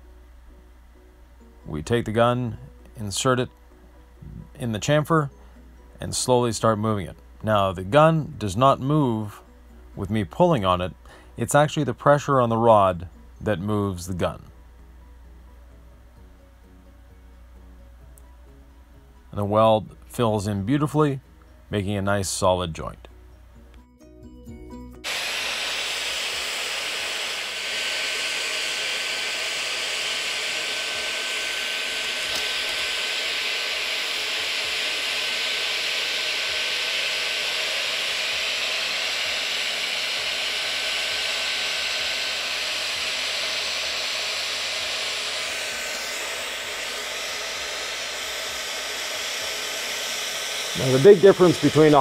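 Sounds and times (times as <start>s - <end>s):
hot-air gun hissing: 25.0s - 52.0s.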